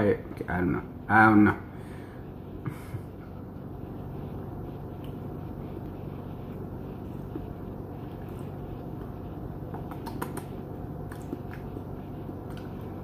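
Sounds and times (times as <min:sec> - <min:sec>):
low room hum: 0:00.0 - 0:13.0
mouth chewing clicks: 0:09.7 - 0:11.7.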